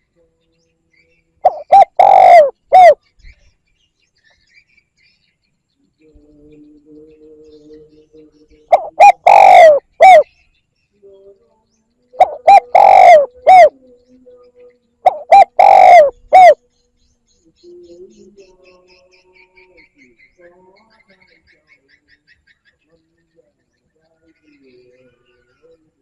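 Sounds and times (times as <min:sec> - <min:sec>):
dove cooing: 0:01.4 - 0:03.0, 0:08.7 - 0:10.3, 0:12.2 - 0:13.8, 0:15.0 - 0:16.6.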